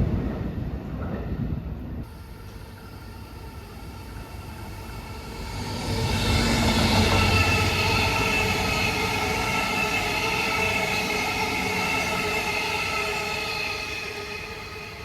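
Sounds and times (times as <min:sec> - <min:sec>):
rumbling rush of train: 0:00.0 - 0:15.0
train wheels squealing: 0:03.2 - 0:15.0.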